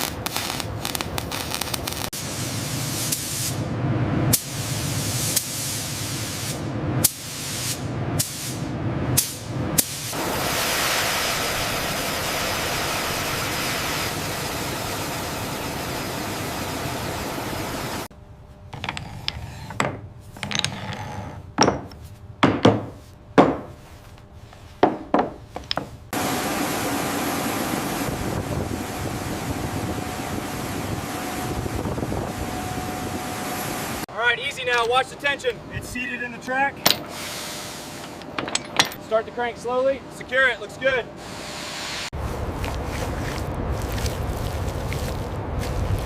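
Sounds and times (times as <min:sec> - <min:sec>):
steady machine rushing noise: 0:07.8 - 0:18.1, 0:26.1 - 0:34.1
faint machine hum: 0:07.8 - 0:41.6.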